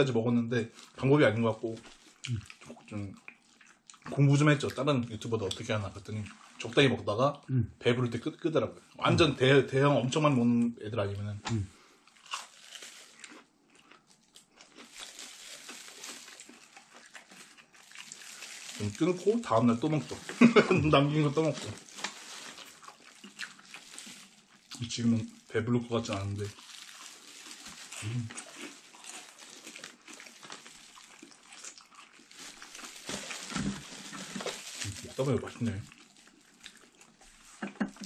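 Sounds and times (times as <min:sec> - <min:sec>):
chewing crispy fried food: 0:00.0 - 0:07.2, 0:10.2 - 0:38.0
paper and plastic crinkling: 0:14.8 - 0:38.0.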